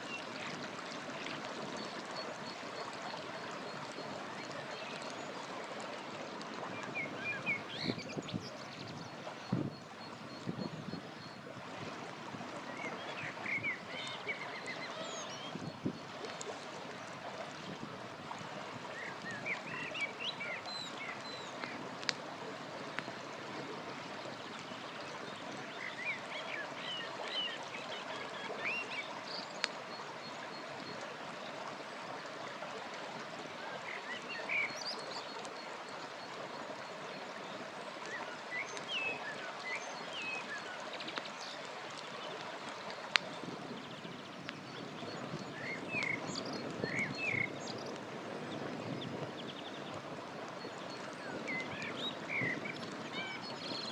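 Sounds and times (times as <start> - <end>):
river water flowing: 0.0 - 53.9
songbirds chirping: 6.8 - 17.3, 33.2 - 53.9
campfire crackling pops: 21.6 - 22.3, 42.9 - 43.4.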